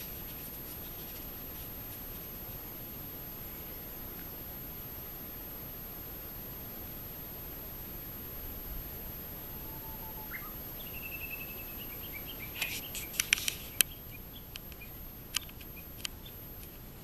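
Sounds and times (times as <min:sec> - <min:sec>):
steady hiss: 0:00.0 - 0:17.0
bird calling faintly: 0:09.3 - 0:16.5
sharp clicks: 0:12.4 - 0:16.7.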